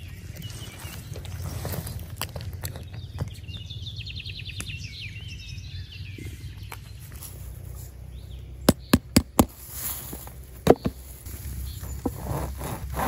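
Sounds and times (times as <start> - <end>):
low outdoor rumble: 0.0 - 13.0
songbird trilling: 2.7 - 7.2.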